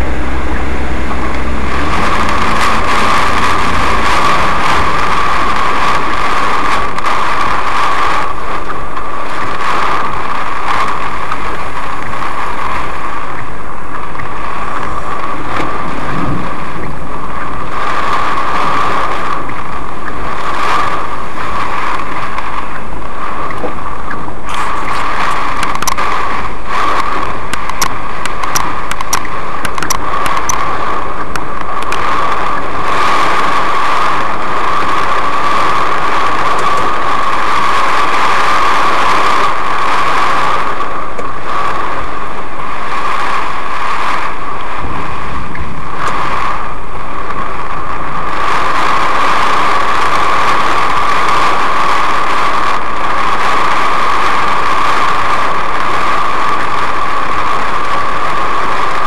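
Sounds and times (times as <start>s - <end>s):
heavy rain drumming on car roof: 0.0s - 59.0s
raindrop ticks: 0.5s - 17.9s, 23.4s - 33.3s.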